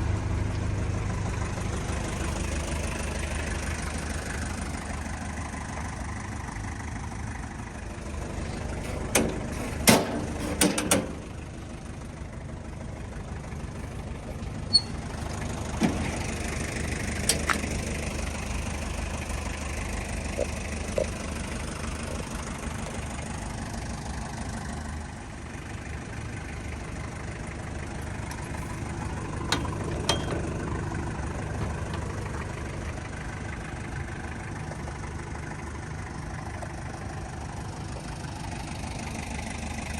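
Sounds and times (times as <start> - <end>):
diesel engine idling: 0.0 - 39.9
sharp clicks and knocks: 8.8 - 11.4, 17.2 - 17.9, 29.5 - 30.6.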